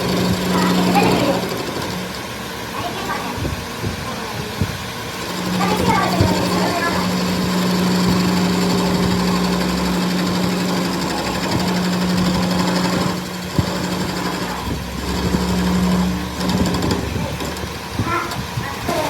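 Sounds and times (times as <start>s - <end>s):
workshop machine humming and rattling: 0.0s - 19.0s.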